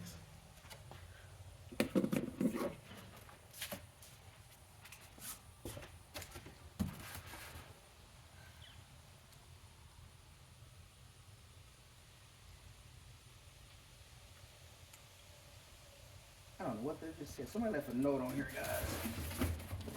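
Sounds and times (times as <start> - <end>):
cardboard box rustling: 18.5 - 19.9.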